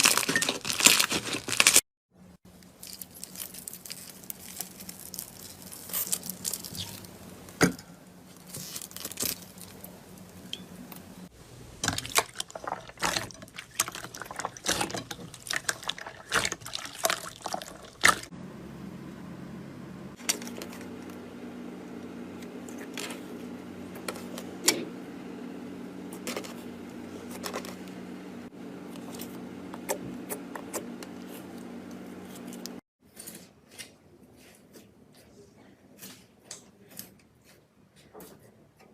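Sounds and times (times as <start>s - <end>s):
steady low hum: 2.2s - 32.8s.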